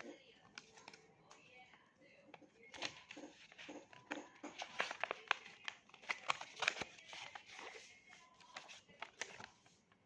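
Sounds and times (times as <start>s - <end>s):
paper being folded and crinkling: 2.6s - 10.0s.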